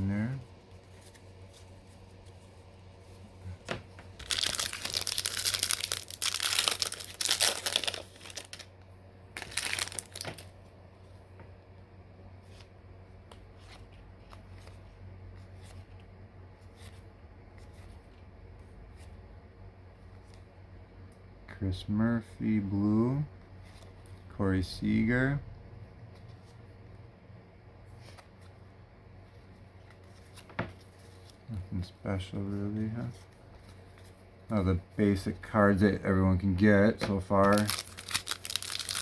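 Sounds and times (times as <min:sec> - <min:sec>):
cards being handled: 0:00.1 - 0:08.7, 0:09.4 - 0:10.6, 0:37.0 - 0:39.0
foil wrapper tearing and crinkling: 0:04.2 - 0:08.7, 0:09.4 - 0:10.4, 0:37.4 - 0:39.0.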